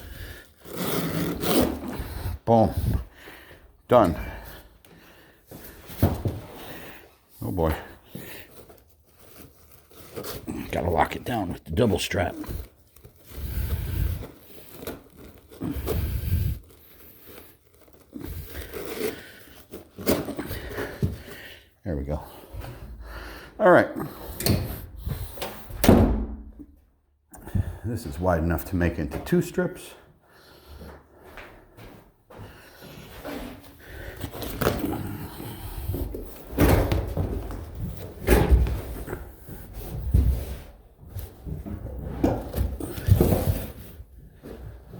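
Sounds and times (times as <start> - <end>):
carpet rustling and crunching: 7.4 - 21.4.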